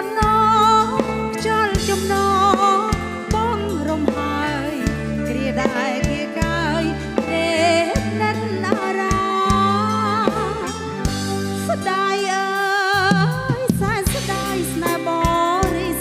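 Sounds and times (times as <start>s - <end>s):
woman singing with vibrato: 0.0s - 16.0s
bass notes: 0.2s - 11.9s, 13.0s - 16.0s
drum hits: 13.1s - 14.6s.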